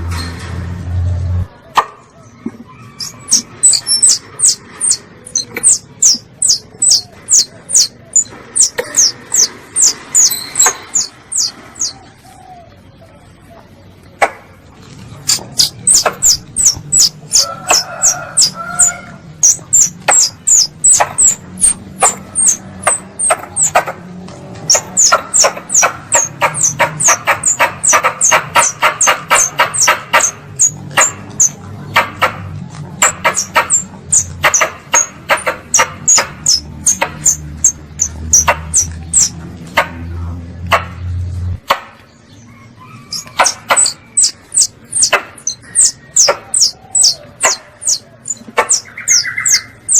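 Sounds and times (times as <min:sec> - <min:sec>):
squirrel call chirps: 0:02.8 - 0:12.0, 0:15.3 - 0:23.9, 0:24.7 - 0:32.3, 0:33.0 - 0:39.4, 0:42.5 - 0:49.9.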